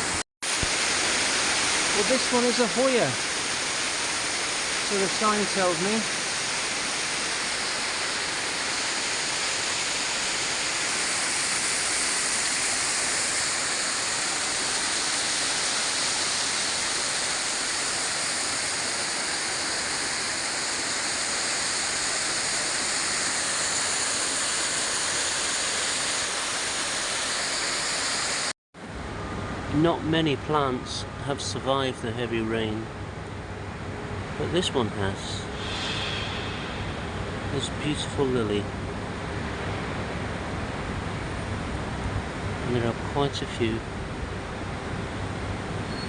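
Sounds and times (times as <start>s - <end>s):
falling water rushing hiss: 0.0s - 28.5s, 35.2s - 38.7s.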